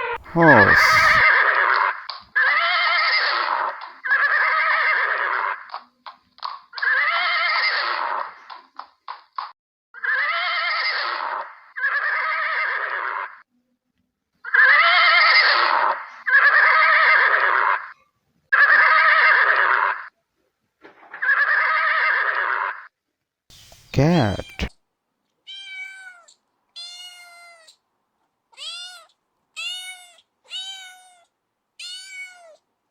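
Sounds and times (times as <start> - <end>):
horse whinnying: 0.0 - 1.2.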